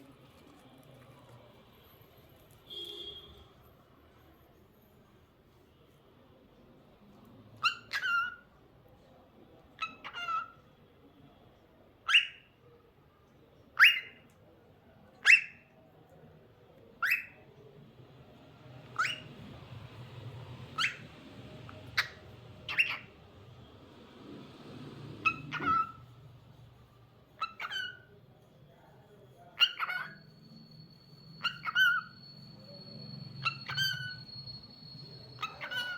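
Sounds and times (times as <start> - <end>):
cockatiel calls: 7.6 - 8.5, 9.8 - 10.6, 12.0 - 12.5, 13.8 - 14.2, 15.2 - 15.7, 17.0 - 17.4, 18.8 - 19.6, 20.7 - 23.2, 25.2 - 26.1, 27.4 - 28.1, 29.6 - 30.6, 31.2 - 35.9.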